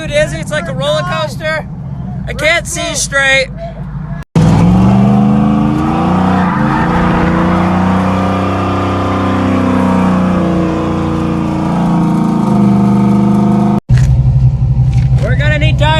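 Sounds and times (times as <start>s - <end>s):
truck engine revving hard: 4.4s - 13.8s.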